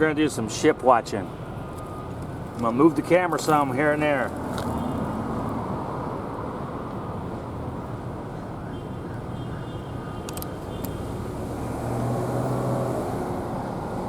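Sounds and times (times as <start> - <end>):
vehicle engine rumble: 1.2 - 14.0
sharp clicks: 10.3 - 11.0.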